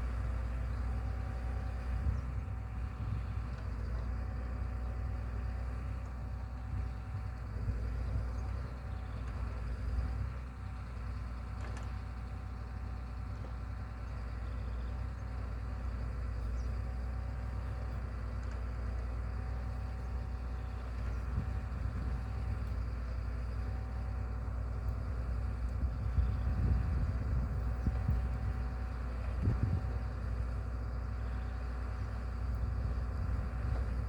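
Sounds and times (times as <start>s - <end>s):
machine engine running: 15.6s - 34.0s.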